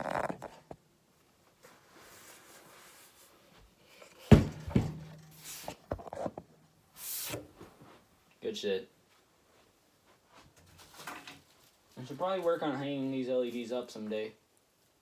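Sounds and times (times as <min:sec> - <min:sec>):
sharp knocks: 0:04.3 - 0:05.4.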